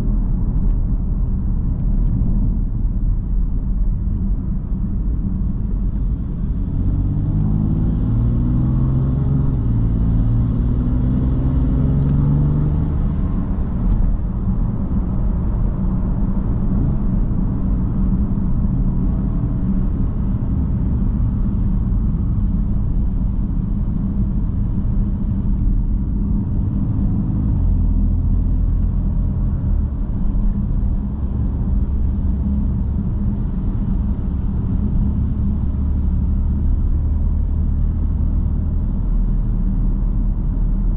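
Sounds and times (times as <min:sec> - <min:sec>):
car engine and exhaust: 0:00.0 - 0:40.9
road rumble: 0:00.0 - 0:40.9.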